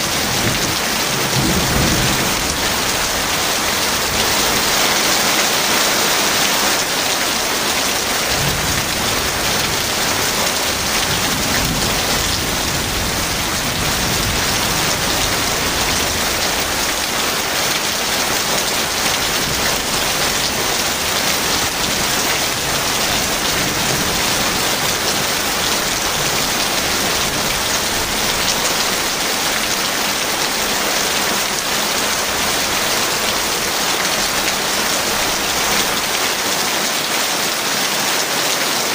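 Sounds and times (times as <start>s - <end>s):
distant thunder rumble: 0.0s - 4.8s, 7.4s - 17.2s
heavy rain hissing: 0.0s - 38.9s.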